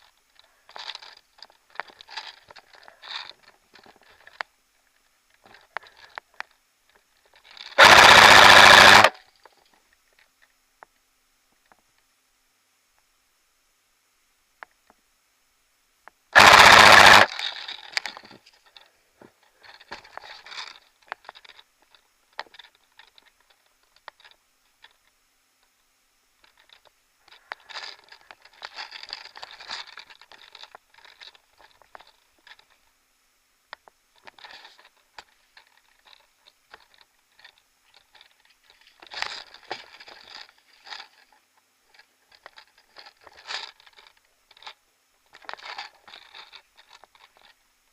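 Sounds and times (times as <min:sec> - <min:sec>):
airsoft rifle full-auto burst: 0:07.7 - 0:09.2, 0:16.3 - 0:17.4.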